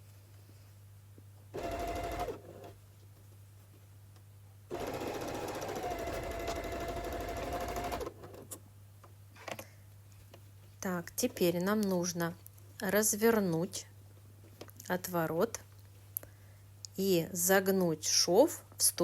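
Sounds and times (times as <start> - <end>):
sewing machine stitching: 1.5 - 2.8, 4.7 - 8.6.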